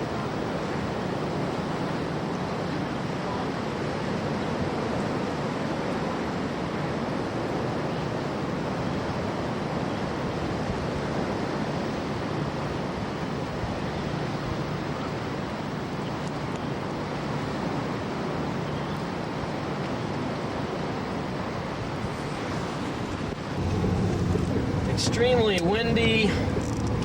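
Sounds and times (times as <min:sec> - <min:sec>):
heavy storm surf: 0:00.0 - 0:27.0
wind buffeting microphone: 0:20.1 - 0:27.0.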